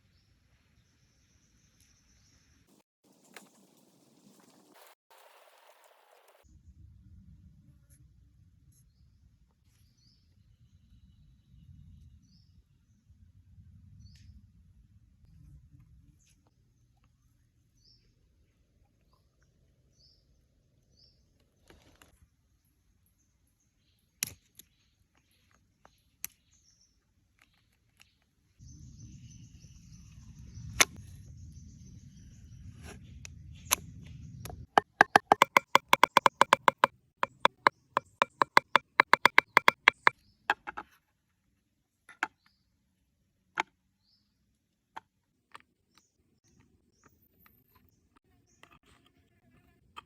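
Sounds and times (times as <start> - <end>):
clicks and taps: 34.8 - 40.1.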